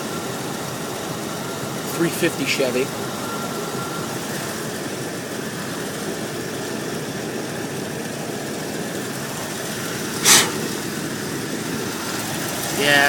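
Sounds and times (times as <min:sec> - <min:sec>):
car engine idling: 0:00.0 - 0:13.0
sharp hiss: 0:10.1 - 0:11.0.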